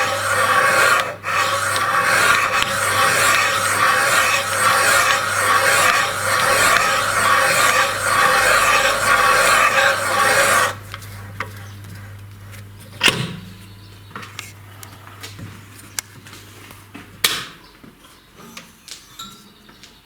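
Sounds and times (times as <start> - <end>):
cutter scraping metal: 0.0 - 10.8
machine humming: 0.0 - 11.6.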